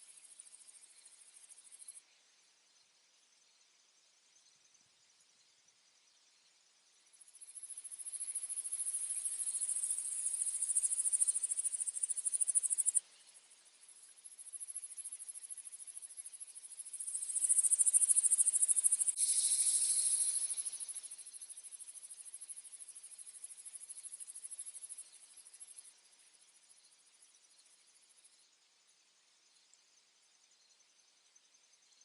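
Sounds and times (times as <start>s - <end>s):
crickets trilling: 7.1s - 13.0s, 13.8s - 25.9s.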